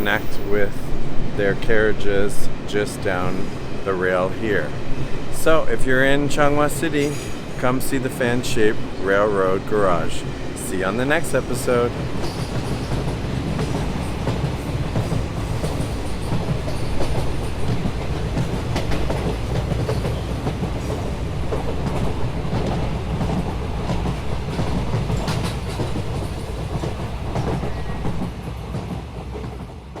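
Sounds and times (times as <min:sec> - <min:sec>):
train rumbling on rails: 0:00.0 - 0:30.0
wheels clacking over rail joints: 0:05.4 - 0:29.6.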